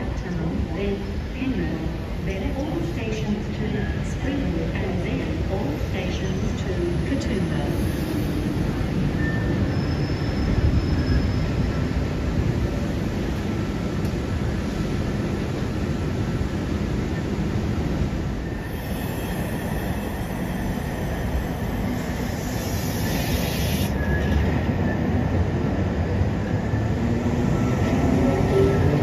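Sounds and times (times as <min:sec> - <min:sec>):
rising train whine: 0:00.0 - 0:29.0
train wheel rumble: 0:01.9 - 0:29.0
hiss: 0:18.6 - 0:24.2.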